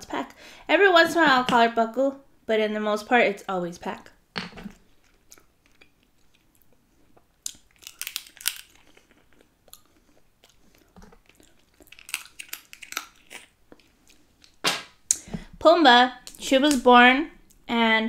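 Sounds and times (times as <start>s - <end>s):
person chewing seafood: 4.8s - 14.6s.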